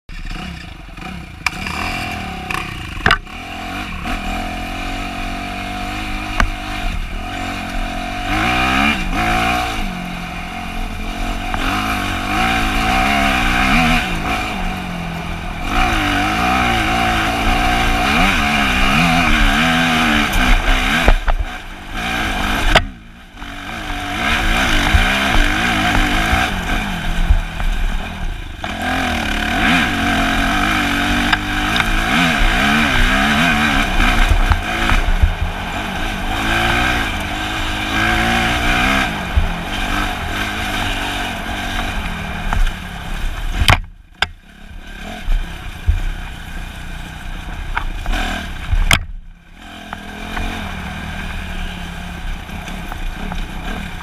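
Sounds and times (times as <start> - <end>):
dirt bike engine revving: 0.1 - 54.0.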